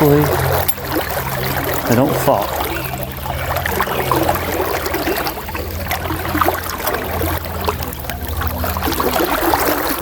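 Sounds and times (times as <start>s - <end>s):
river water rushing and splashing: 0.0s - 10.0s
water gurgling: 0.0s - 10.0s.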